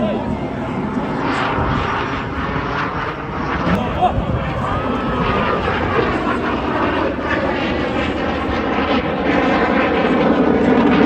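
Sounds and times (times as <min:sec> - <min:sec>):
aircraft engine flying over: 0:00.0 - 0:11.0.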